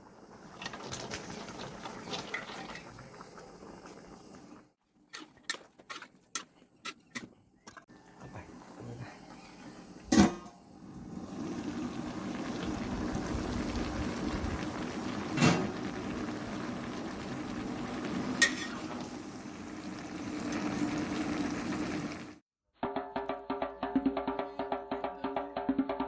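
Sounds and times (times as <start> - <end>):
vegetables sizzling in a pan: 0.0 - 4.7, 7.9 - 10.1, 10.7 - 22.4.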